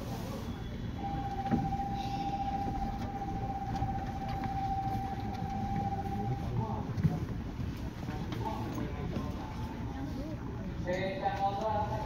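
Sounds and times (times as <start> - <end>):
train car rumble: 0.0 - 10.6
steady high tone: 0.9 - 6.9.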